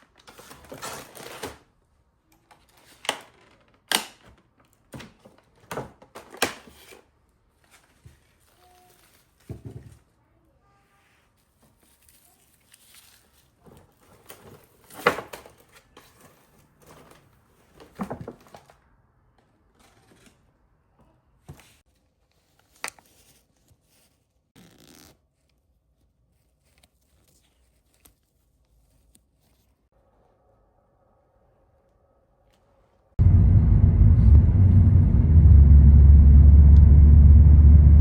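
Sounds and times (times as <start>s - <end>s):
rustling and scraping: 11.0s - 18.8s.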